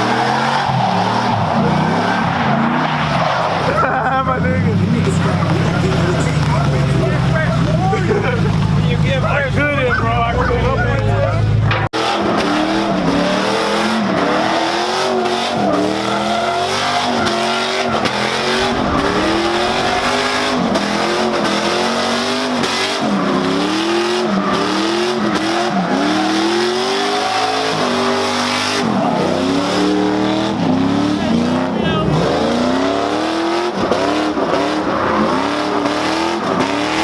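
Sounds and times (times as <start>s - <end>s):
car engine revving hard: 12.0s - 37.0s.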